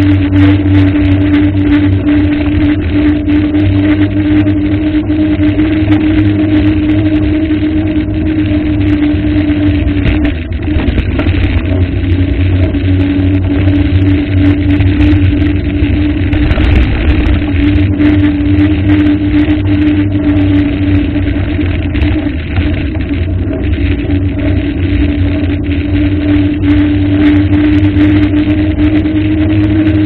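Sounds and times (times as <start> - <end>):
engine humming steadily: 0.0 - 30.0.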